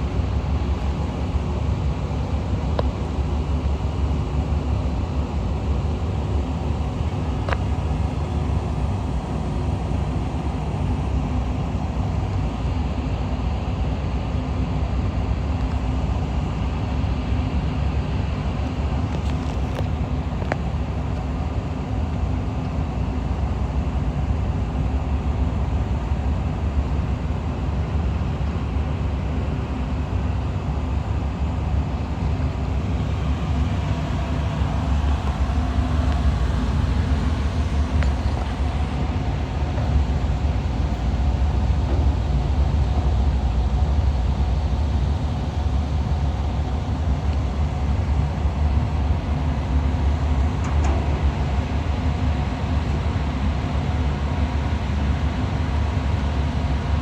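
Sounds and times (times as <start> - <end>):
ship engines deep rumble: 0.0 - 57.0
faint hum: 29.9 - 57.0.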